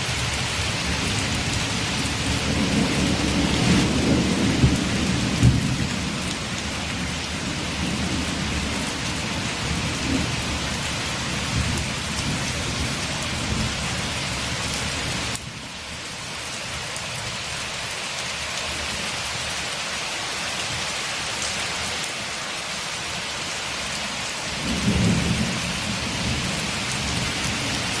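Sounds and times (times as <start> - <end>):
rain falling: 0.0 - 28.0
low thunder rumbling: 0.8 - 14.5, 24.6 - 28.0.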